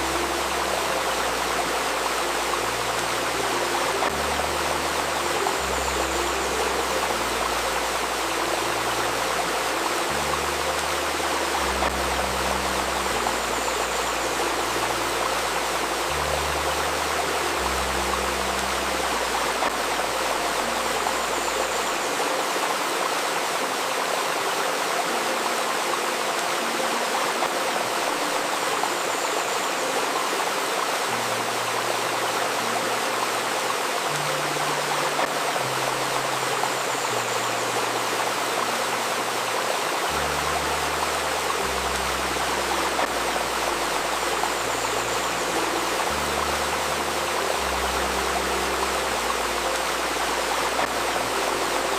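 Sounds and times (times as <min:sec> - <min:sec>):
soft low sustained tones: 0:00.0 - 0:24.1
river babbling over stones: 0:00.0 - 0:51.9.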